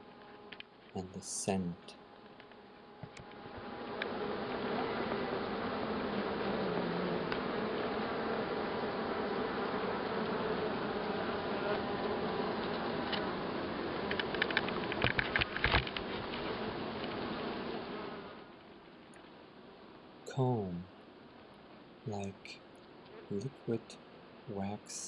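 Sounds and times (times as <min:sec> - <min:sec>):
honeybees humming in hive: 0:00.0 - 0:25.0
sharp clicks and crackles: 0:14.0 - 0:16.4.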